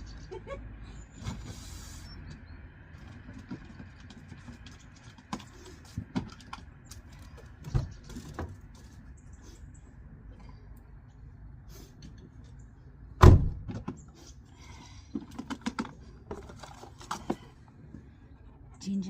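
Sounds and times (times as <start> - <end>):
loud thump: 13.2 - 13.8.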